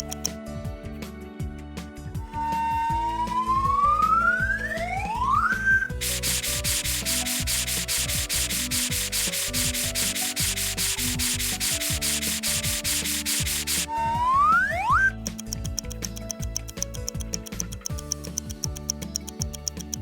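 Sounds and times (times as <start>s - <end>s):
background music: 0.0s - 20.0s
rising whistle: 2.3s - 6.0s, 13.9s - 15.1s
cartoon scrubbing: 5.9s - 14.0s.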